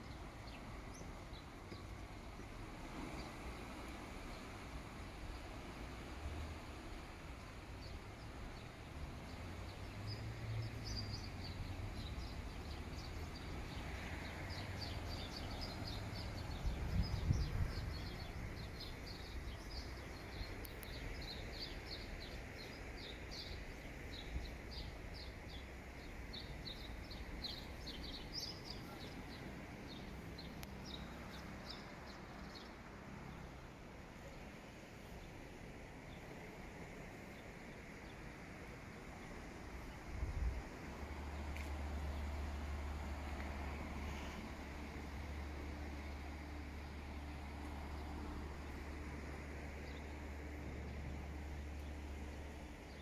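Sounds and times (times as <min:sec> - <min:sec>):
low outdoor rumble: 0:00.0 - 0:53.0
small birds chirping: 0:07.8 - 0:33.4.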